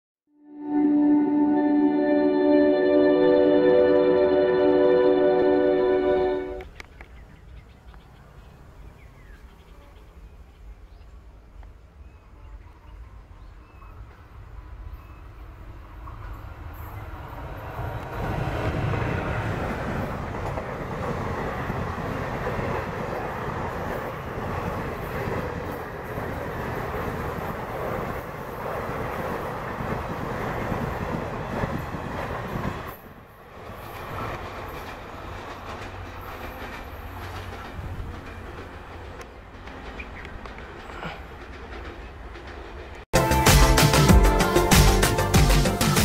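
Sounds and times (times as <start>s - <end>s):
train rumble: 13.0s - 46.0s
clickety-clack over rail joints: 16.0s - 43.0s.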